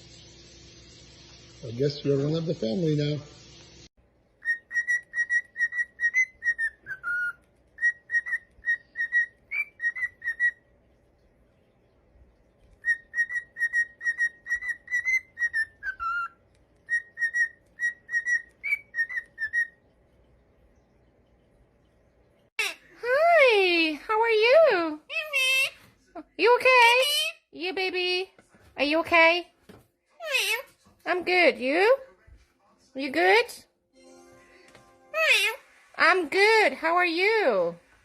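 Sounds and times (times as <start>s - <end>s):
parrot whistling a tune: 4.4s - 10.7s, 12.8s - 19.8s.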